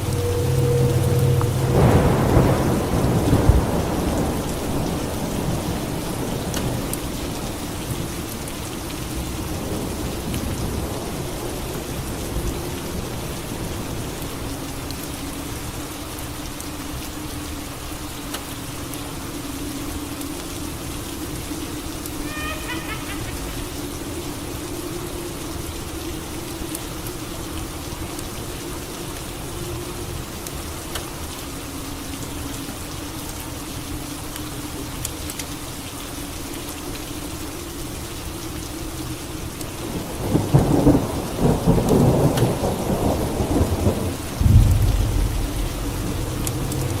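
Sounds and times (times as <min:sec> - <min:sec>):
thunderclap rumbling: 0:00.0 - 0:06.9, 0:40.0 - 0:47.0
steady rain falling: 0:00.0 - 0:47.0.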